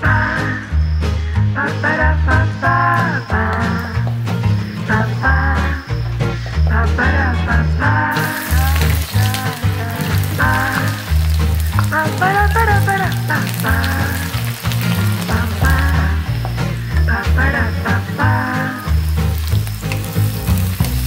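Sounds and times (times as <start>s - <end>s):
background music with bass: 0.0s - 21.0s
garlic sizzling in oil: 8.1s - 21.0s.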